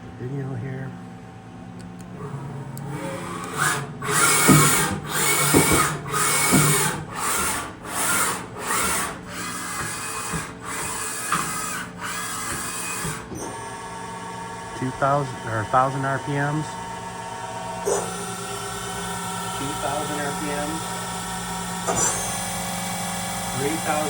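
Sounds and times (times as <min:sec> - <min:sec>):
machine servo whine with hiss: 0:02.9 - 0:13.6, 0:17.8 - 0:24.0.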